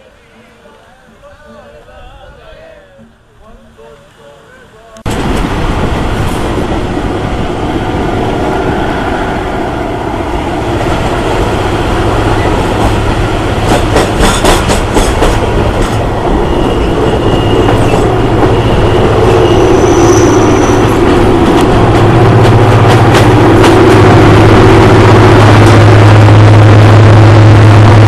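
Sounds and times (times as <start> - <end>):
passenger train running: 0.0 - 28.0
wheel clacks over rail joints: 13.6 - 18.8
high wheel squeal: 16.0 - 21.3.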